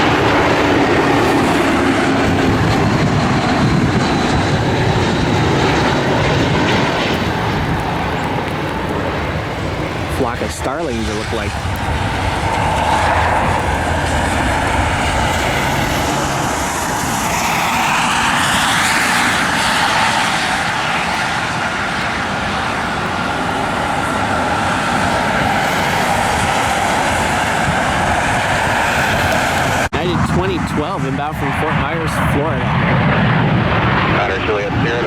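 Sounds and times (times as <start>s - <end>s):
jet aircraft engines passing: 0.0s - 35.0s.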